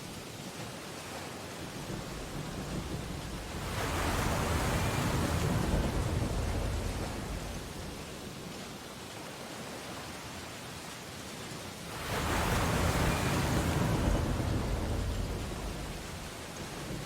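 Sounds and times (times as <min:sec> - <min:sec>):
low wash of surf: 0:00.0 - 0:17.0
wave breaking on shore: 0:00.8 - 0:08.6, 0:11.8 - 0:17.0.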